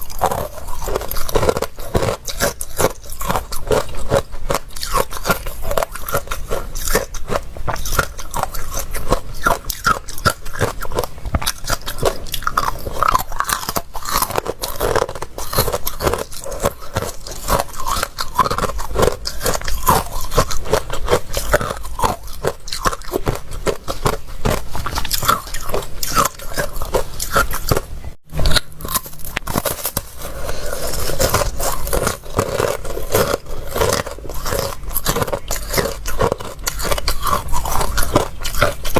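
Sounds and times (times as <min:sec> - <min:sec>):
chewing crunchy ice: 0:00.0 - 0:38.9.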